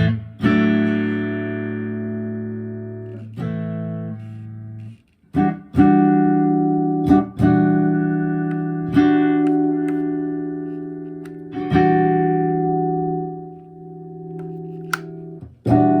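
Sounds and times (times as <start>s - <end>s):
electric guitar chords ringing: 5.4s - 16.0s.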